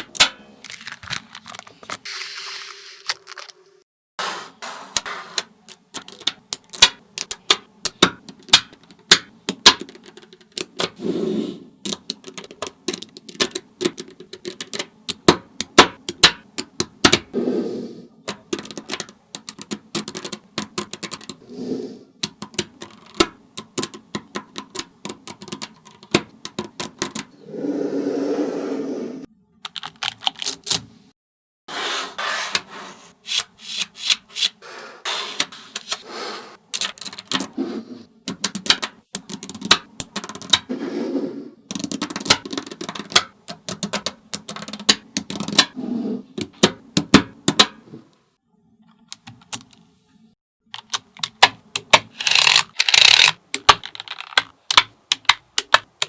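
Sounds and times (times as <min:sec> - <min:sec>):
magnetic balls clicking together: 0:05.4 - 0:11.0, 0:11.8 - 0:17.3, 0:18.2 - 0:21.4, 0:22.2 - 0:27.3, 0:36.7 - 0:37.5, 0:38.2 - 0:40.7, 0:41.7 - 0:45.8, 0:50.7 - 0:56.0
magnetic balls rattling: 0:52.1 - 0:54.5.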